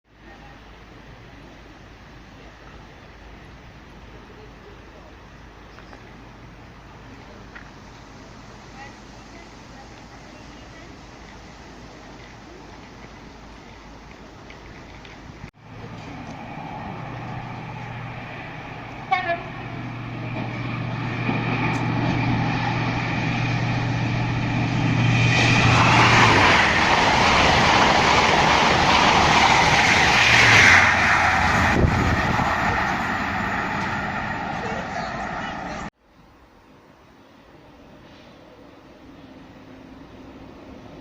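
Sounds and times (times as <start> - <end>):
train engine hum: 0.1 - 41.0
train wheels and air rushing: 14.3 - 35.9
train horn toot: 19.0 - 19.7.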